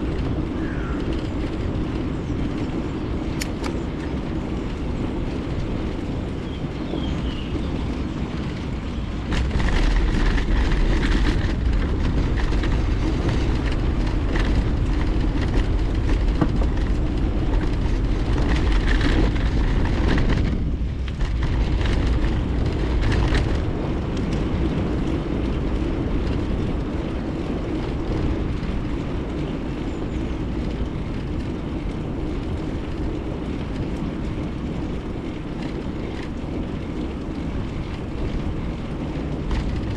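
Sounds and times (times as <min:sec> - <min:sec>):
bike tyres rolling on road: 0:00.0 - 0:39.9
wind rumbling on microphone: 0:00.0 - 0:39.9
clicks and rattles: 0:03.3 - 0:04.1, 0:08.5 - 0:23.6.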